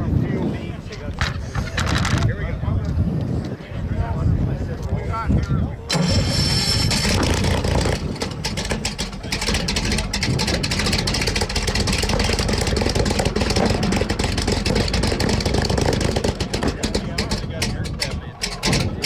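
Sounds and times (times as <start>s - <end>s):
engine running steadily: 5.9s - 19.0s.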